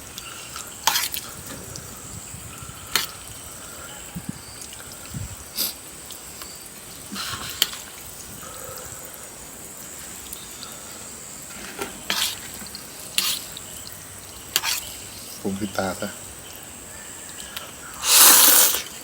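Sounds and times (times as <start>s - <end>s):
faint hiss: 0.0s - 19.0s
person slurping and smacking: 0.2s - 1.3s, 18.0s - 19.0s.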